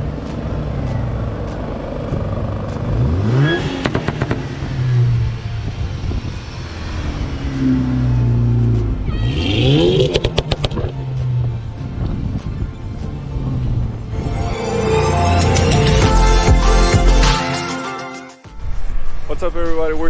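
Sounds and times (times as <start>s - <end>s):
exhaust popping: 0.0s - 14.1s
car engine revving: 0.0s - 17.2s.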